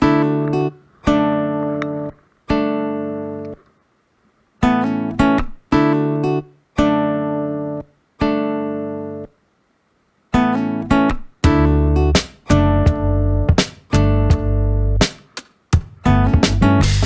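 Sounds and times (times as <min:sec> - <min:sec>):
acoustic guitar strummed chords: 0:00.0 - 0:03.6, 0:04.6 - 0:09.4, 0:10.3 - 0:17.0.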